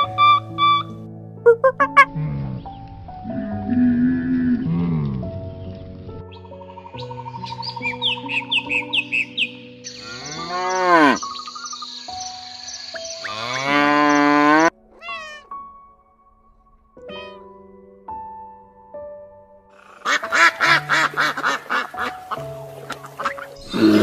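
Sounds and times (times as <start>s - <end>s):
soft background music: 0.0s - 24.0s
cow mooing: 10.0s - 11.2s, 13.2s - 14.7s
cat meowing: 14.9s - 15.7s, 17.0s - 17.5s.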